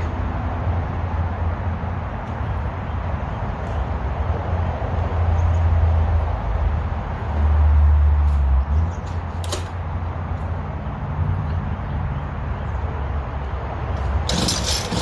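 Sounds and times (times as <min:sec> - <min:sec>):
small petrol engine running: 0:14.0 - 0:15.0.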